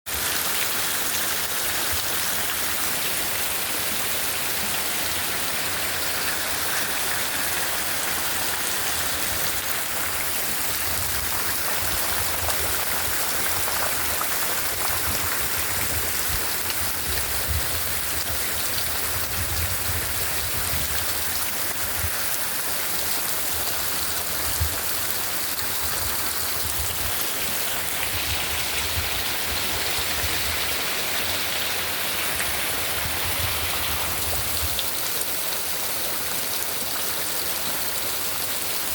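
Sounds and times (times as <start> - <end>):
heavy rain: 0.1 - 38.9
raindrops drumming on surfaces: 4.7 - 31.6.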